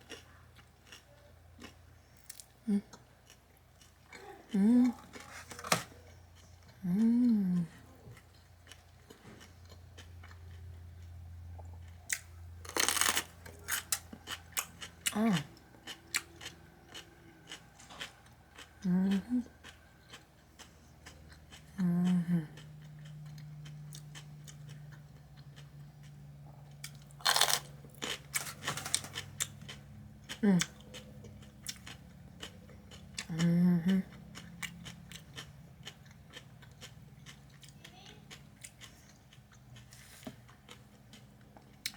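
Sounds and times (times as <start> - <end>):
crunchy chewing: 0.0 - 41.9
low steady hum: 0.0 - 41.9
person humming: 4.5 - 5.1, 6.8 - 7.8, 33.3 - 34.0
crunching bites of sandwich: 12.2 - 14.9, 26.8 - 30.4.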